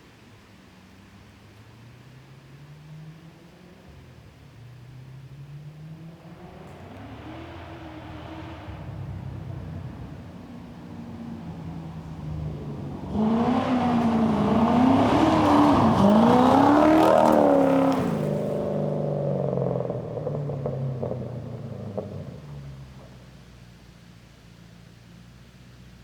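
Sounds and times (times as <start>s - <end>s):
car engine revving: 3.2s - 23.8s.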